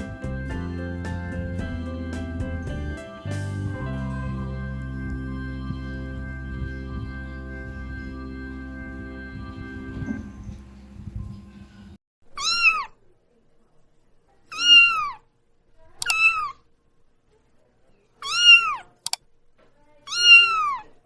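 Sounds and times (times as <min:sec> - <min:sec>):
background music: 0:00.0 - 0:10.8.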